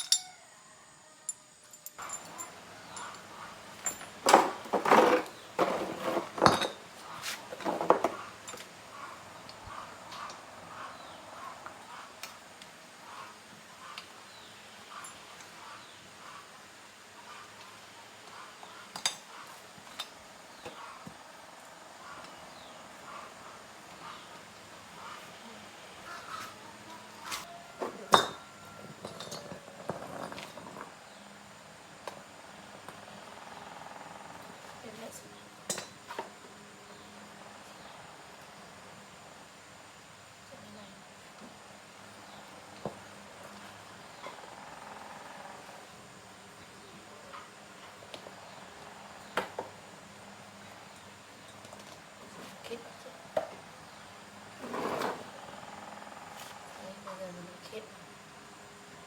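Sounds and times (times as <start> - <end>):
metal tools clattering: 1.7 - 8.7.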